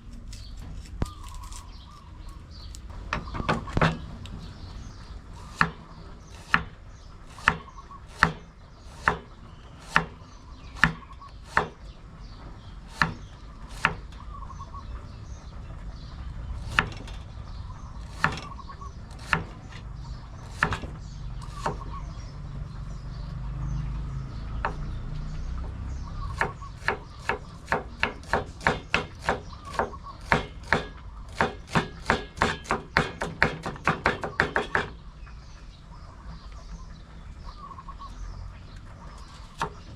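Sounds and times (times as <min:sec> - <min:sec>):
knife chopping papaya: 0:05.4 - 0:10.2, 0:10.8 - 0:11.8, 0:20.5 - 0:21.9, 0:26.3 - 0:35.0.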